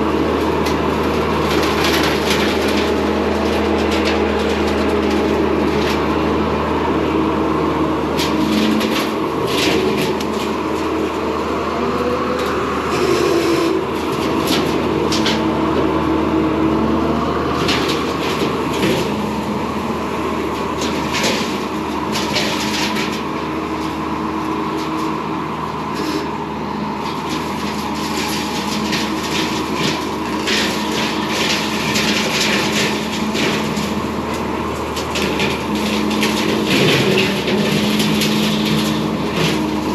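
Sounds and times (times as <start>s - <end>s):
diesel engine running: 0.0s - 39.9s
blades shredding branches: 27.0s - 39.9s.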